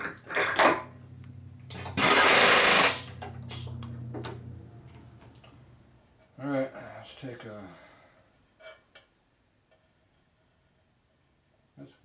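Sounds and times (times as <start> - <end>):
loud hiss burst: 2.0 - 3.1.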